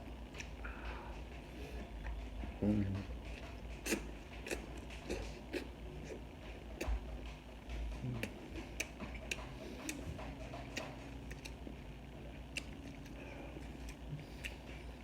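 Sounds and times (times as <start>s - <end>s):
low room hum: 0.0s - 15.0s
chewing crunches: 3.3s - 6.2s, 8.0s - 15.0s.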